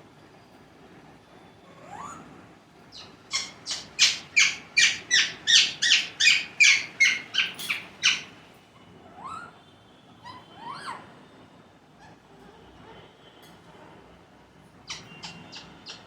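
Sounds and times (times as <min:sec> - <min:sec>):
parrot squawking: 0:03.0 - 0:08.3, 0:14.9 - 0:16.0.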